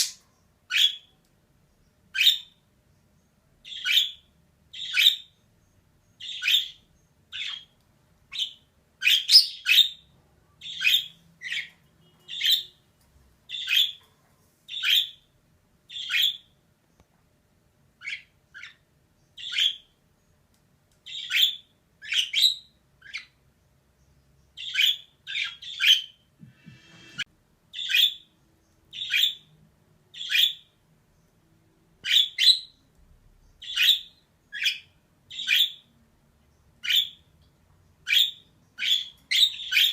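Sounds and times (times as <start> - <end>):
budgerigar chirping: 0.0 - 1.1, 2.1 - 2.6, 3.6 - 5.4, 6.2 - 12.8, 13.5 - 14.0, 14.7 - 15.2, 15.9 - 16.5, 18.0 - 18.8, 19.4 - 19.9, 21.1 - 23.4, 24.6 - 26.2, 27.7 - 28.3, 28.9 - 29.5, 30.1 - 30.8, 32.0 - 32.8, 33.6 - 35.9, 36.8 - 37.3, 38.0 - 39.9.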